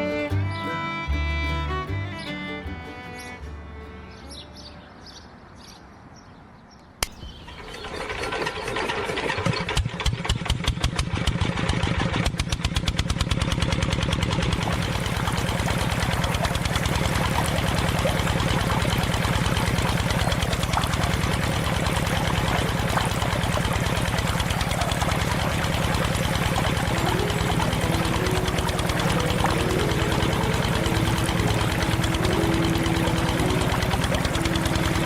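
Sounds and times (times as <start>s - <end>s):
sharp click: 7.0s - 7.4s
small tractor engine running: 7.1s - 35.0s.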